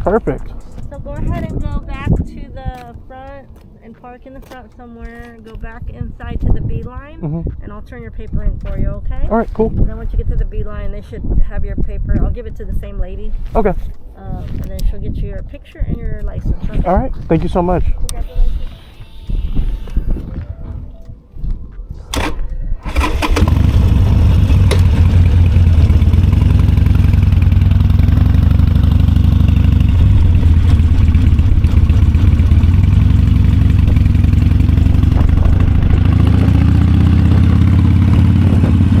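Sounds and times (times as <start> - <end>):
motorcycle engine idling: 0.0 - 5.2, 22.1 - 39.0
motorcycle starter cranking: 0.0 - 5.8, 18.1 - 20.4, 21.9 - 39.0.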